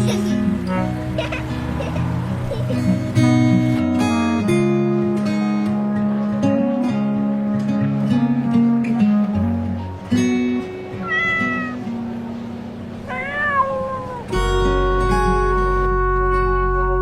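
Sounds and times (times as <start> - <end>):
guitar music: 0.0 - 17.0
kitten meowing: 11.0 - 11.9, 13.0 - 14.4.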